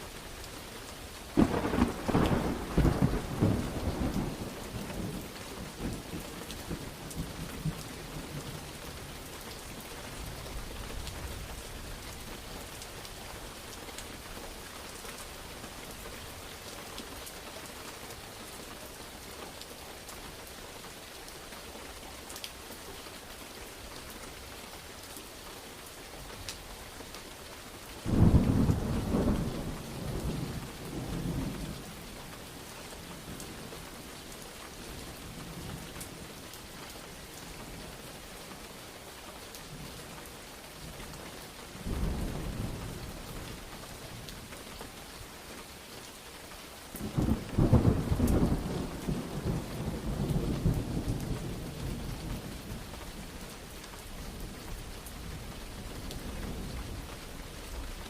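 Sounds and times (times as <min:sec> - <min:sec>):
steady rain falling: 0:00.0 - 0:58.0
low thunder rumble: 0:01.4 - 0:08.6.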